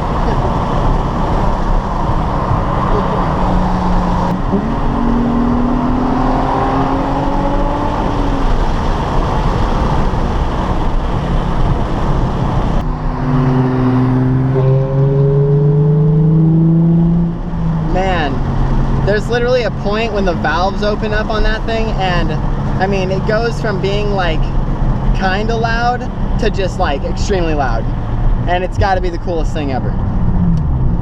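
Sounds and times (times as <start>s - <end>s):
sports car engine revving: 0.0s - 19.8s
road and wind noise: 0.0s - 31.0s.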